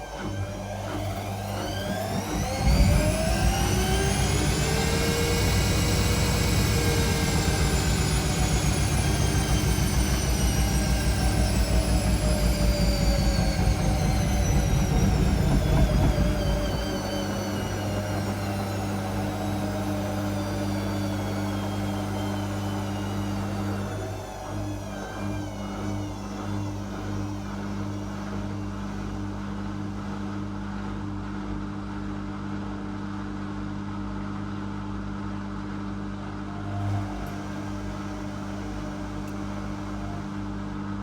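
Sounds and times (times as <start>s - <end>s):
steady low hum: 0.0s - 31.6s
washing machine motor whine: 0.0s - 41.0s
drum pulsing: 0.1s - 29.5s.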